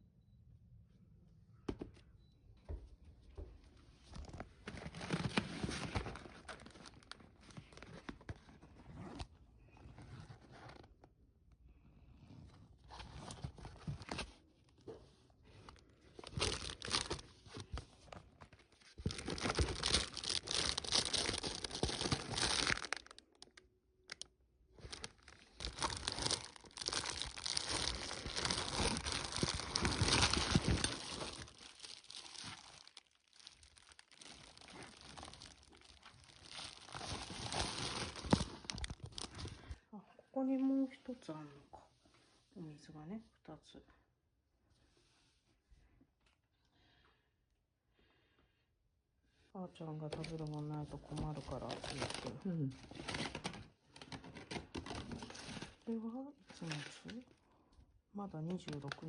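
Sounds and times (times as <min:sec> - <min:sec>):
packaging crinkling and tearing: 0:04.2 - 0:09.3, 0:15.6 - 0:39.8, 0:50.1 - 0:55.8, 0:56.5 - 0:57.3, 0:58.5 - 0:59.0.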